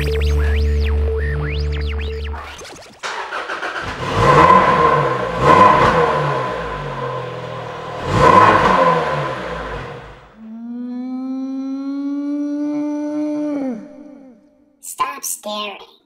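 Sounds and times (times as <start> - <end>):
car engine starting and revving: 0.0 - 10.4.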